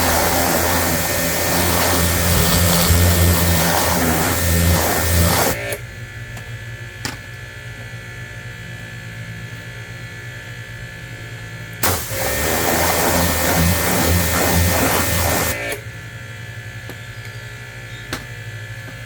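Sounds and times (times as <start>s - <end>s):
loud machine motor humming: 0.0s - 5.8s, 11.8s - 15.8s.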